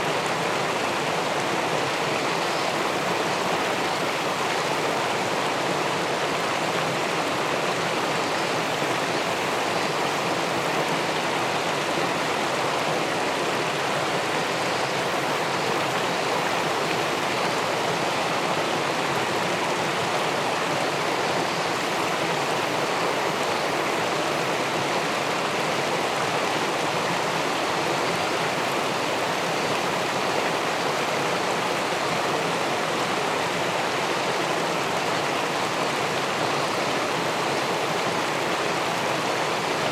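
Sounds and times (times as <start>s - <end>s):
water rushing over a weir: 0.0s - 39.9s.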